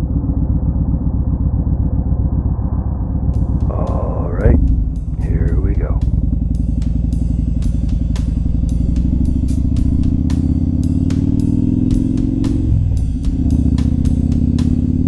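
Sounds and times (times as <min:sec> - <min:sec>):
motorcycle engine accelerating: 0:00.0 - 0:15.0
music with drum beat: 0:03.4 - 0:15.0.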